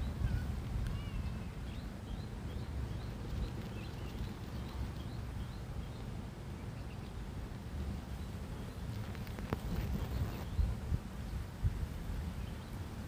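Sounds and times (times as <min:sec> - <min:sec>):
bird chirping: 0:00.0 - 0:07.2
wind rumble on microphone: 0:00.0 - 0:13.0.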